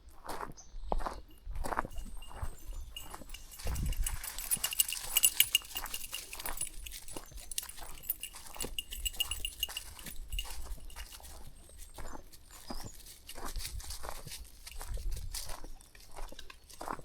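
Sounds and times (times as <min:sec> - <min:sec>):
footsteps scuffing on path: 0:00.2 - 0:17.0
dogs moving: 0:01.3 - 0:11.6.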